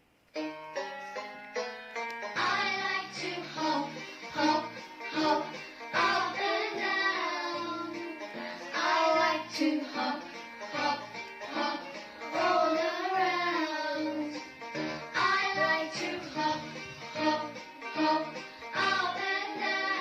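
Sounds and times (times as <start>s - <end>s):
instrumental backing: 0.3s - 20.0s
child singing: 2.4s - 8.1s, 8.7s - 10.2s, 12.4s - 14.4s, 15.2s - 16.6s, 17.2s - 20.0s.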